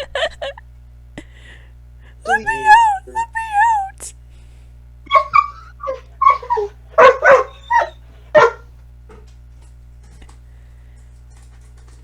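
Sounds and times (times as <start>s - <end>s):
puppy barking and yipping: 2.3s - 3.8s, 5.1s - 8.6s.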